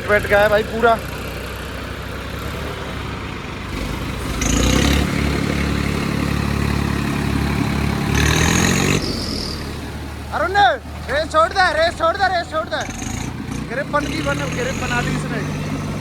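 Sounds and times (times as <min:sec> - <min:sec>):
diesel tractor engines labouring: 0:00.0 - 0:16.0.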